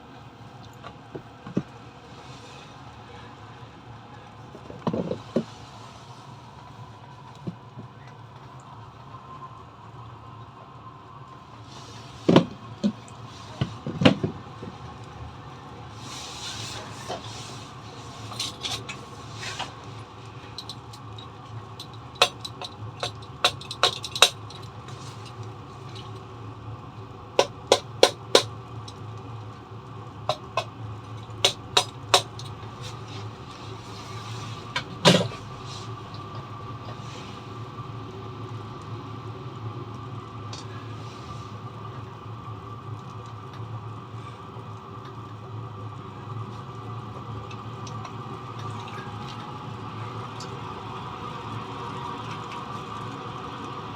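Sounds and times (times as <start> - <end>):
heater mechanical hum: 0.0 - 53.9
sharp clicks and knocks: 21.8 - 24.7, 27.4 - 28.5, 30.3 - 30.7, 31.4 - 32.5.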